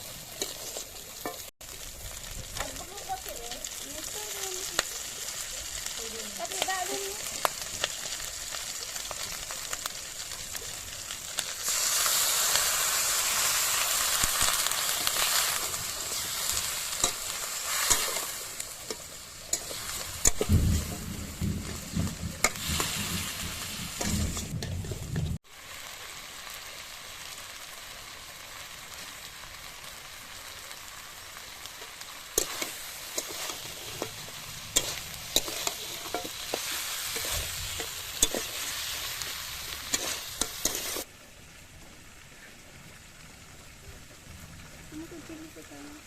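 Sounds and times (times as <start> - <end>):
curry sizzling in a pot: 0.0 - 46.0
utensil scraping a pot: 32.4 - 41.1.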